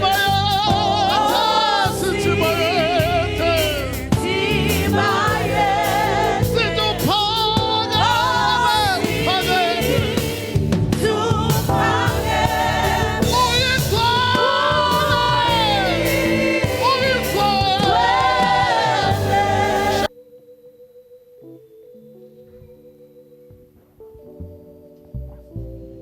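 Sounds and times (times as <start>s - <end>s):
group singing gospel song: 0.0s - 20.1s
instrumental backing: 0.0s - 20.1s.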